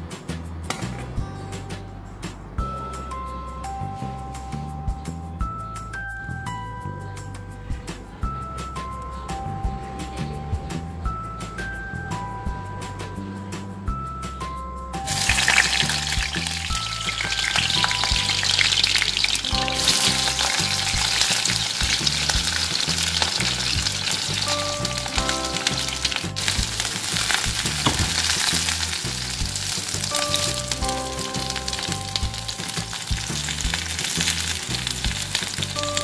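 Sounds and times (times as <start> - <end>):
eggplant sizzling in hot oil: 15.1 - 36.0.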